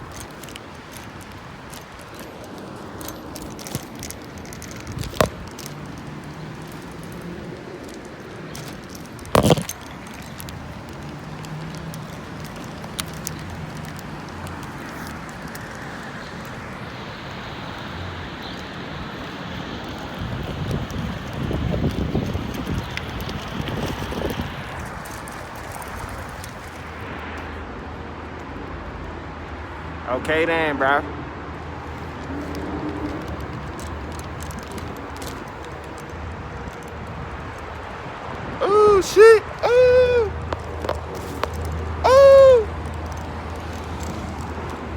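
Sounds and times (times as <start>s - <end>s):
faint ticks and rattles: 0.0s - 26.9s, 31.8s - 38.0s
road and wind noise: 0.0s - 44.9s
street traffic rumble: 0.0s - 44.9s.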